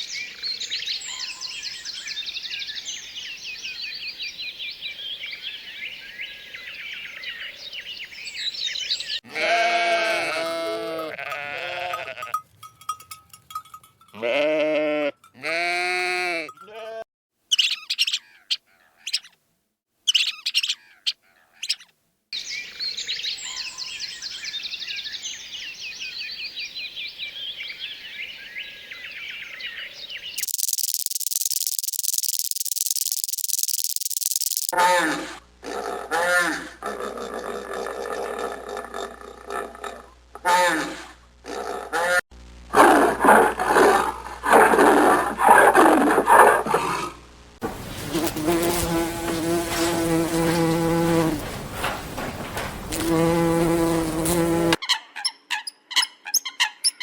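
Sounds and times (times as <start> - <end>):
small birds chirping: 0.0 - 9.2, 17.5 - 19.4, 20.1 - 34.8
goat or sheep bleating: 9.2 - 12.4, 14.1 - 17.1
sharp clicks: 30.4 - 34.7.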